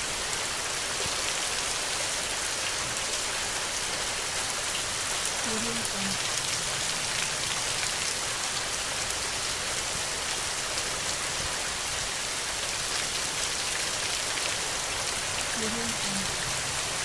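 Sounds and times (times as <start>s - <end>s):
steady rain hissing: 0.0s - 17.0s
raindrops pattering: 0.1s - 17.0s.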